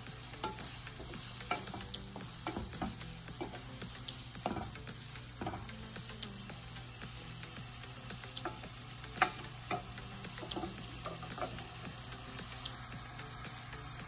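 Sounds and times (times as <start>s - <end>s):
scallops sizzling in a pan: 0.0s - 14.0s
wooden spatula scraping a pan: 0.4s - 3.7s, 4.4s - 5.7s, 9.2s - 11.8s.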